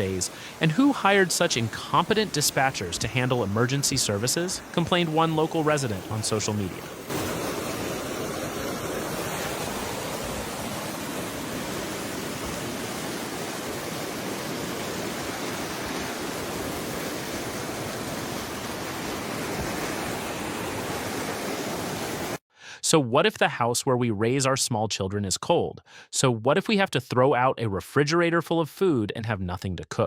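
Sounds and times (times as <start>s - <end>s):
floodwater rushing: 0.0s - 22.4s.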